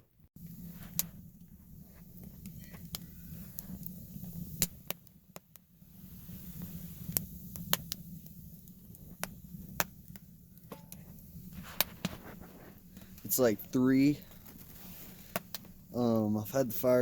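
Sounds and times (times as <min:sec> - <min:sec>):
wood fire crackling: 0:00.4 - 0:17.0.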